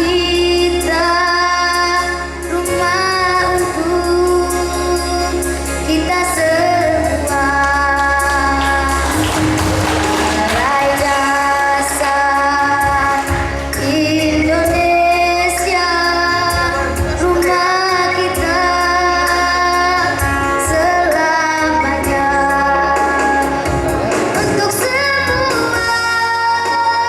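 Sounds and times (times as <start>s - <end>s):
child singing in high voice: 0.0s - 9.1s, 10.4s - 23.5s, 24.3s - 27.0s
bass line and light percussion: 0.0s - 27.0s.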